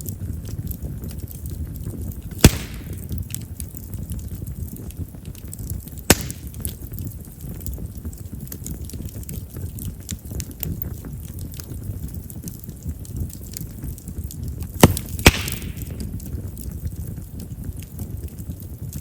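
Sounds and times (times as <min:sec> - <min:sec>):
low flame rumble: 0:00.0 - 0:19.0
small fire crackles: 0:00.0 - 0:19.0
loud sharp firewood pops: 0:02.3 - 0:03.2, 0:06.0 - 0:06.7, 0:14.8 - 0:16.2.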